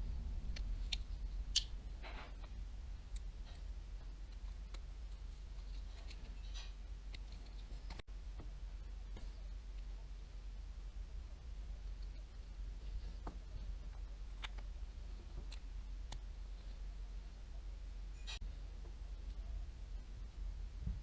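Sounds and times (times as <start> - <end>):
steady low hum: 0.0 - 21.0
clicks and taps of small parts: 13.2 - 14.7.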